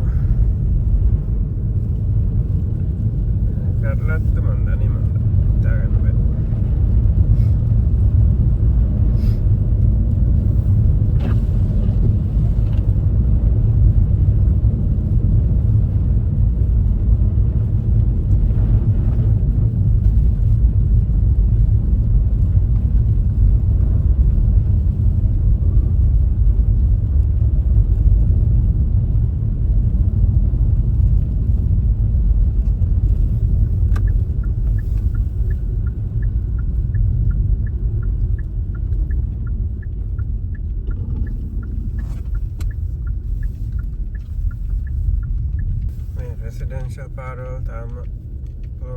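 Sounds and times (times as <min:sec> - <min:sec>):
car road and engine rumble: 0:00.0 - 0:48.9
light regular ticking: 0:32.6 - 0:48.8.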